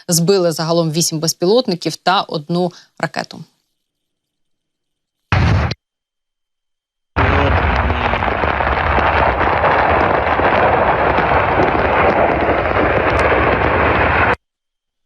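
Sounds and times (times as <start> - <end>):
explosion rumble: 5.3 - 5.8, 7.2 - 14.4
faint crackles: 7.2 - 14.5.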